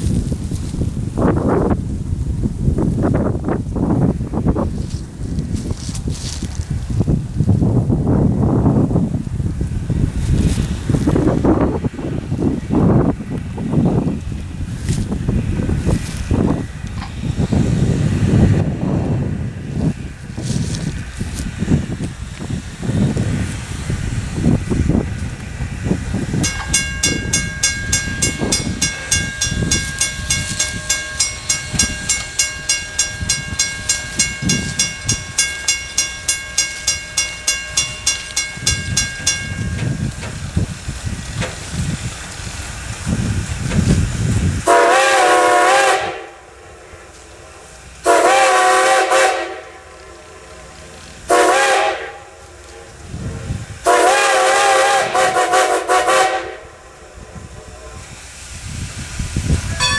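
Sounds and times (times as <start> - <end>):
steam train rumbling: 0.0 - 59.9
steam locomotive chime whistle: 26.3 - 40.2, 44.6 - 46.6, 48.0 - 50.2, 51.3 - 52.4, 53.8 - 56.9, 59.7 - 59.9
bell ringing: 26.4 - 40.2.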